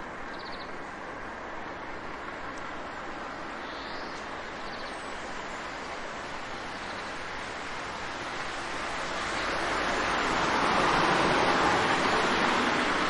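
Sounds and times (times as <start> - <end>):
faint high bird chirps: 0.3 - 0.8
water rushing: 5.3 - 13.0.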